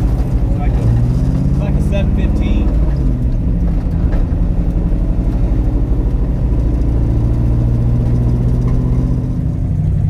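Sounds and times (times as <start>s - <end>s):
car engine running at low revs: 0.0s - 10.0s.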